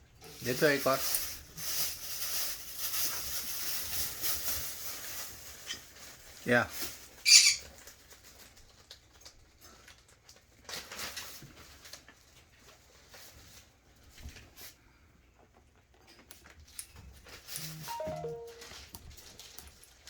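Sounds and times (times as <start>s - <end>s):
parrot eating taps and rustles: 0.2s - 18.2s.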